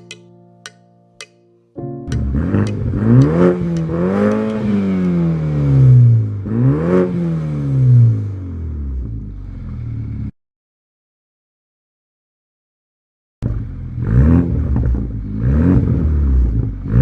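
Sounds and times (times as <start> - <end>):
car engine revving and idling: 2.2 - 10.3, 13.4 - 17.0.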